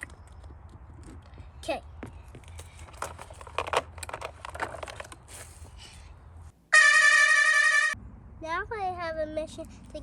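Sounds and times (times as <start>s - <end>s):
loud held multi-pitch tone: 6.7s - 8.0s.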